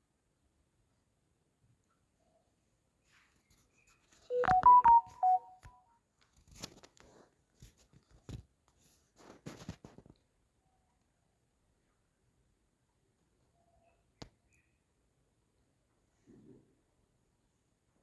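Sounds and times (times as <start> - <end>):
electronic beeping jingle: 4.3 - 5.6.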